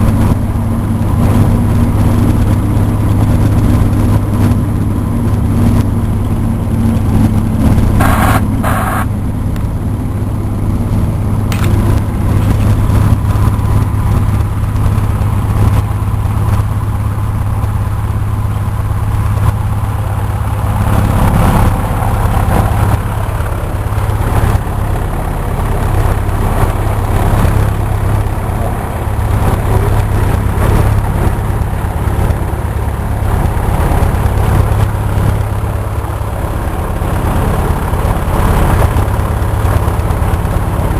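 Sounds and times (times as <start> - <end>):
propeller plane engine running: 0.0 - 40.9
short high-pitched sound: 8.0 - 9.1.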